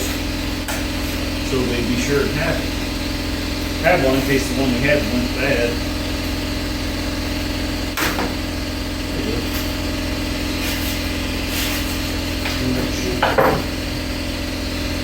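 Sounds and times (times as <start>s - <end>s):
machine drone with low hum: 0.0s - 15.0s.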